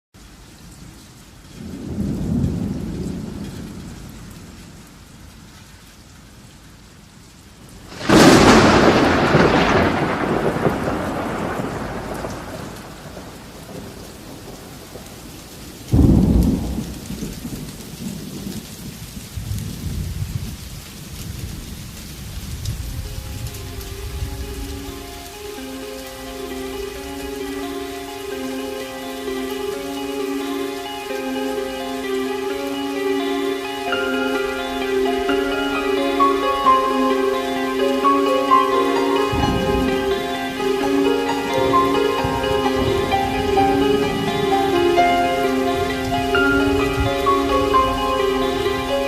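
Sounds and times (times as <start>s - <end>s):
steady rain: 0.2s - 49.0s
rolling thunder: 1.6s - 5.0s, 7.9s - 28.4s, 38.5s - 49.0s
loud thunder clap: 7.9s - 15.1s, 15.9s - 18.6s.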